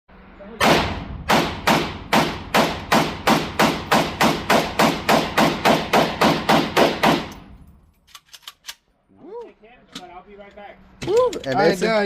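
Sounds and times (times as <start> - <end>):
pistol shots in rapid string: 0.6 - 7.4.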